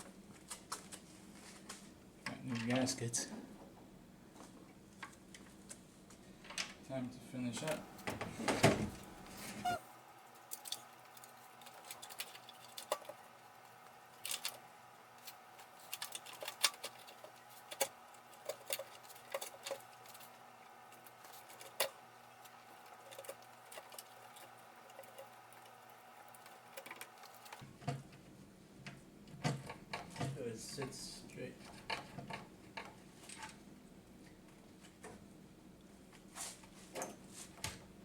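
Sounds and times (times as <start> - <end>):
hand tools and metal parts clicking: 10.4 - 14.6, 15.2 - 27.6.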